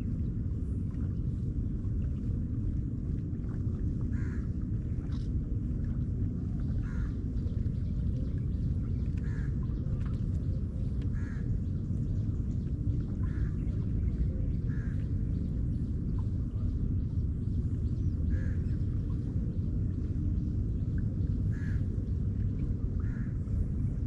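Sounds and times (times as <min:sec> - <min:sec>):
steady low rumble: 0:00.0 - 0:24.0
crow cawing: 0:04.2 - 0:04.4, 0:06.8 - 0:07.1, 0:11.2 - 0:11.4, 0:21.5 - 0:21.8, 0:23.0 - 0:23.3.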